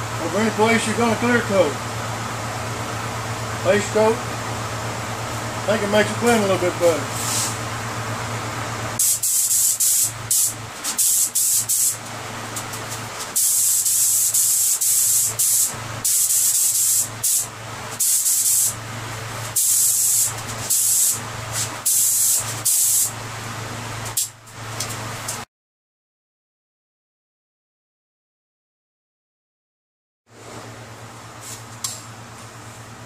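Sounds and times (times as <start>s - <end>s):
steady low hum: 0.0s - 25.4s
spray gun hissing: 9.0s - 12.0s, 13.3s - 18.8s, 19.5s - 23.1s.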